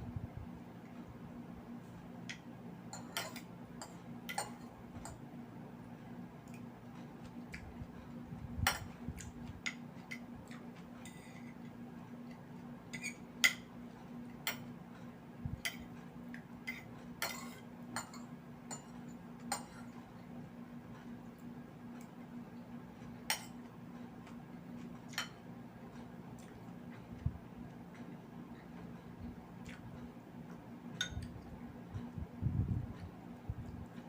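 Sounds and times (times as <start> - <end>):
steady low hum: 0.0 - 34.0
utensils clinking on a plate: 2.9 - 5.2, 11.0 - 11.6, 12.9 - 13.7, 16.7 - 20.0, 25.1 - 25.4
chewing: 6.4 - 8.2, 9.1 - 12.5, 26.3 - 27.2, 29.6 - 30.6.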